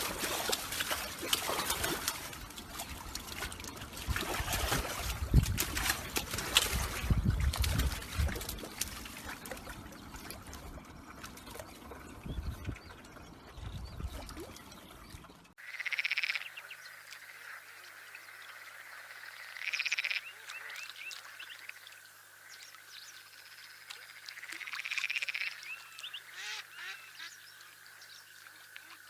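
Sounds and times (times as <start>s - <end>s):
trickling water: 0.0s - 29.0s
short frog chirps: 15.6s - 28.2s
frog chorus: 15.6s - 29.0s
frogs rasping trills: 15.6s - 29.0s.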